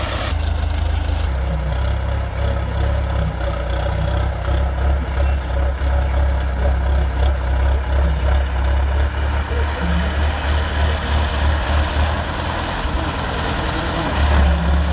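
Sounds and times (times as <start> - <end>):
heavy machinery engine idling: 0.0 - 14.9.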